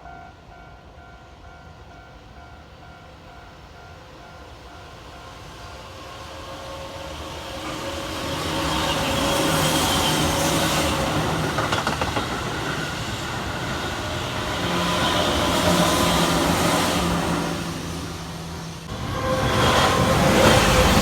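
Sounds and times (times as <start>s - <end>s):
electric train running past: 0.0s - 21.0s
train clicks: 7.6s - 16.8s.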